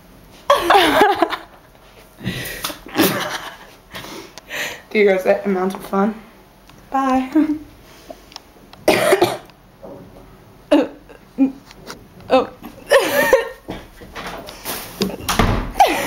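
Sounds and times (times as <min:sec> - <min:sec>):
young people laughing: 0:00.5 - 0:01.7, 0:02.8 - 0:03.8, 0:12.6 - 0:13.7, 0:15.8 - 0:16.0
person coughing: 0:08.9 - 0:09.5, 0:15.8 - 0:16.0.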